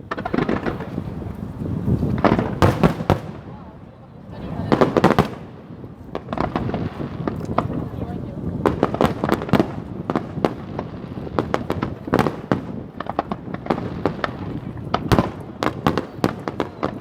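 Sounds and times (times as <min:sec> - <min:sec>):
deep firework bang: 0:00.0 - 0:03.7
fireworks bangs and crackles: 0:00.0 - 0:17.0.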